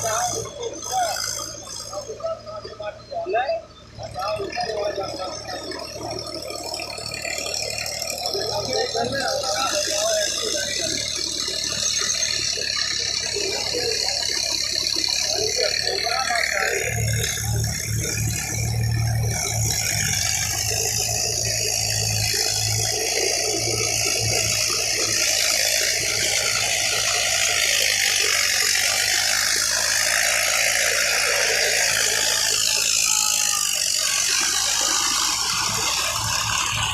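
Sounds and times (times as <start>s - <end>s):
tractor engine running with rattle: 0.0s - 36.9s.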